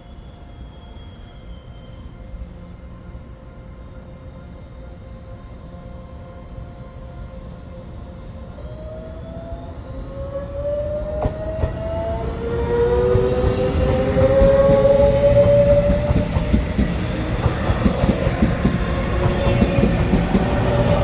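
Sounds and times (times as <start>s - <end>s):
train approaching with whine: 0.0s - 21.0s
wheel clacks: 12.8s - 21.0s.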